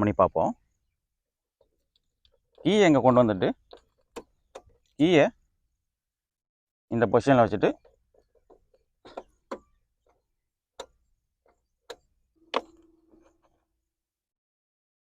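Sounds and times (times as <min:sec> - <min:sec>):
plastic latch releasing: 0:11.9 - 0:13.3.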